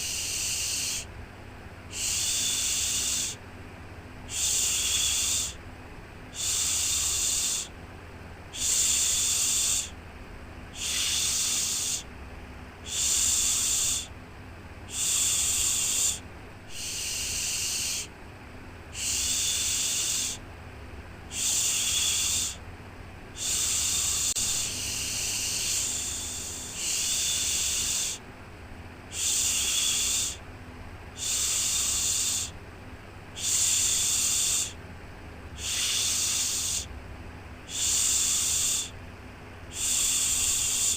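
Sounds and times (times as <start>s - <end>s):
person shushing: 0.0s - 1.1s, 14.9s - 18.1s, 19.0s - 20.4s, 23.4s - 28.2s, 33.4s - 34.8s, 35.6s - 36.9s, 39.7s - 40.9s
white noise with low rumble: 0.0s - 40.9s.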